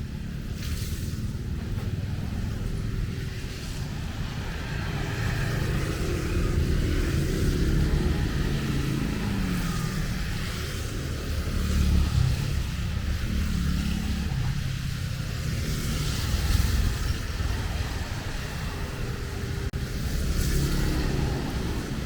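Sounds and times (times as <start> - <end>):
rain hiss on wet road: 0.0 - 22.0
vehicles passing: 0.0 - 22.0.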